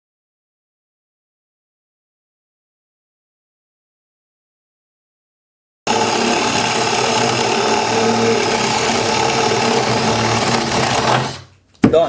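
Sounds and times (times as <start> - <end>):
hammer drill drilling: 5.9 - 11.5.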